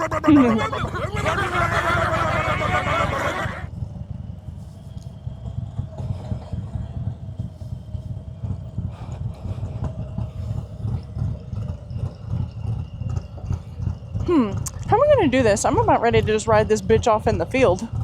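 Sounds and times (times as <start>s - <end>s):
motorcycle engine at low revs: 3.7s - 18.0s.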